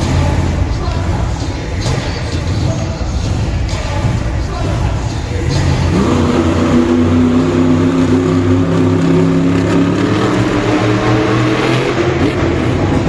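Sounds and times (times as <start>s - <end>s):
monster truck engine revving: 5.3s - 13.0s.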